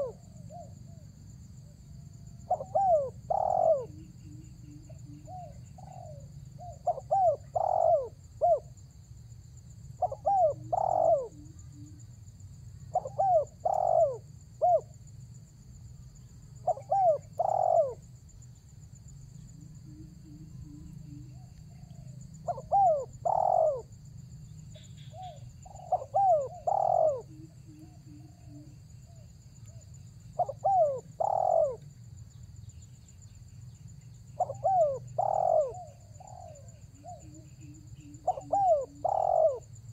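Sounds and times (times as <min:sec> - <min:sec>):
dove cooing: 0:00.0 - 0:01.0, 0:02.3 - 0:08.8, 0:10.0 - 0:12.0, 0:12.9 - 0:15.0, 0:16.6 - 0:18.1, 0:19.7 - 0:24.0, 0:24.7 - 0:29.8, 0:30.4 - 0:31.8, 0:34.4 - 0:39.7.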